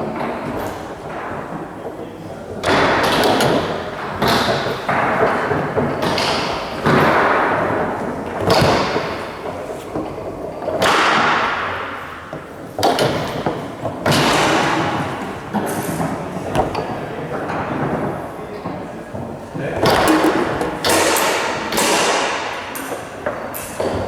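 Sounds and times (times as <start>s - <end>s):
foosball ball and rods knocking: 19.7s - 22.5s.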